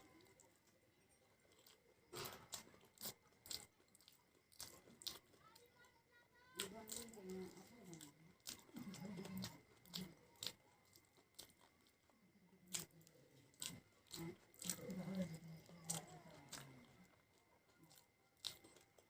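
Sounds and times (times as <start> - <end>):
chewing crunchy snack food: 0.0 - 19.0
wet mouth clicks: 1.6 - 5.4, 6.6 - 12.0, 12.6 - 17.2, 17.8 - 19.0.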